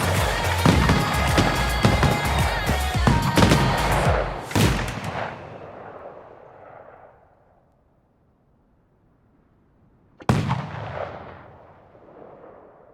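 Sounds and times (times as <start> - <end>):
fireworks booming: 0.0 - 7.1, 10.2 - 12.6
rumble of fireworks: 0.0 - 7.3, 10.2 - 12.9.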